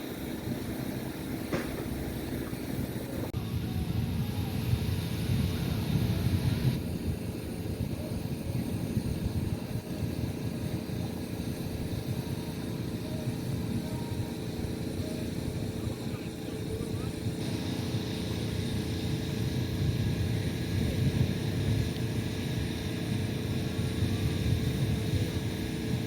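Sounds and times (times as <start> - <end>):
hissing: 0.0 - 26.0
motorboat engine droning: 0.0 - 26.0.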